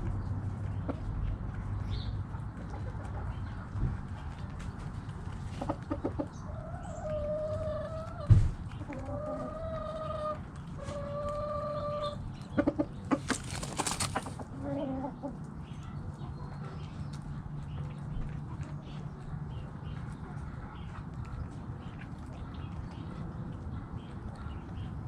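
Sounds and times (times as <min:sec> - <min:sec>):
chickens calling: 0:00.0 - 0:25.0
chickens clucking: 0:00.0 - 0:25.0
sharp thump: 0:08.3 - 0:08.6.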